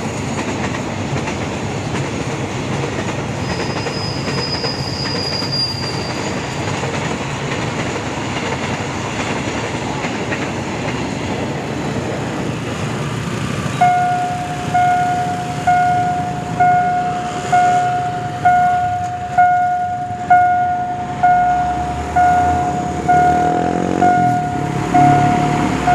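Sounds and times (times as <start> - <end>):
freight train wagons rumbling: 0.0 - 25.9
level-crossing warning bell: 13.8 - 25.9.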